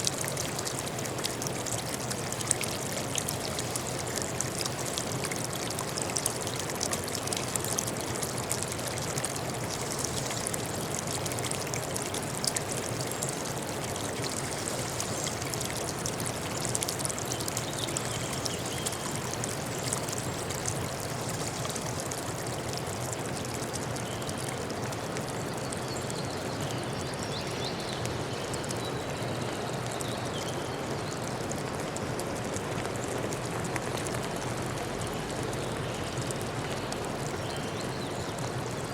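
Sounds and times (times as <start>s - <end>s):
stream rushing and splashing: 0.0s - 25.8s.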